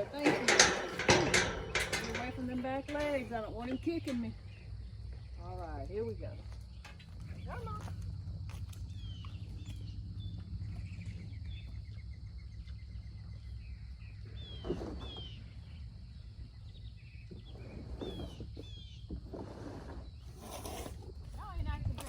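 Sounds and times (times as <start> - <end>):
small knocks: 0.0 - 4.3
songbirds chirping: 0.0 - 19.2
low outdoor rumble: 0.0 - 20.2.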